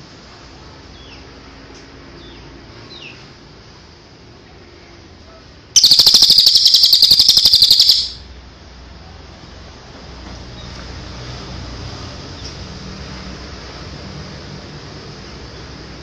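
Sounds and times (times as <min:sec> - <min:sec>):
rapid high bird trill: 0:05.8 - 0:08.2
songbird chirps: 0:05.8 - 0:08.2.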